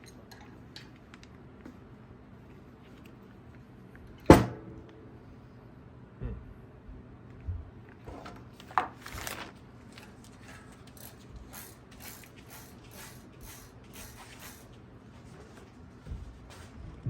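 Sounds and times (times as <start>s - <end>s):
ratchet clicks: 10.9s - 14.7s.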